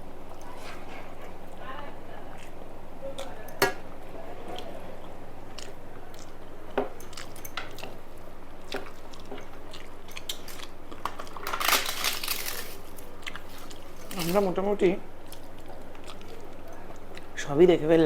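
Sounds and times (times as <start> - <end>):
person chewing food: 4.5 - 11.6, 12.4 - 14.4, 15.1 - 17.4
crunching: 5.5 - 17.3.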